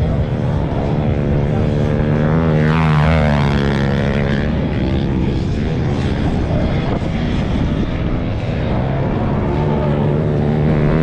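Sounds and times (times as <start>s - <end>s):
vehicle engine revving: 8.7s - 11.0s.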